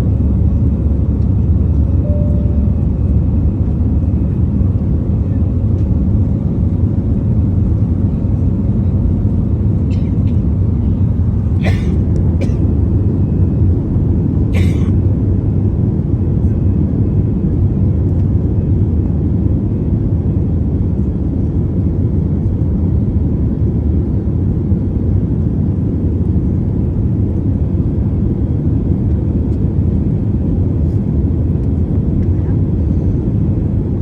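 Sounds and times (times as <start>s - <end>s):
jet engines rumbling: 0.0s - 22.2s.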